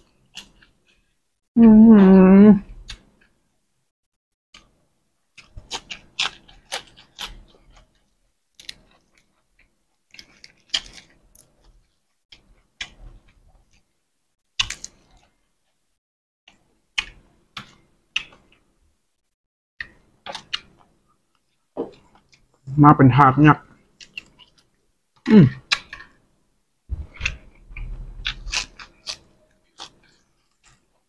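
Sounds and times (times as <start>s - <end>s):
person chewing crisp leafy greens: 0.0s - 1.2s, 5.3s - 13.9s, 23.9s - 26.2s, 27.0s - 31.0s.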